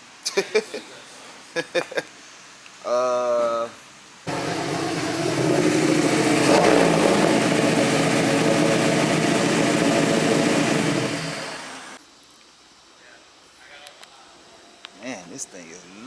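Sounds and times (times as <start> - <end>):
car engine running: 4.3 - 12.0.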